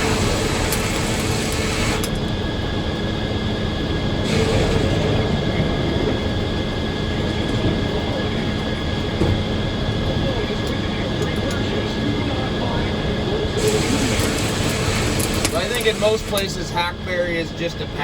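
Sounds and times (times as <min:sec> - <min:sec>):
sawmill machine hum: 0:00.0 - 0:18.0
bright hiss: 0:13.6 - 0:16.4.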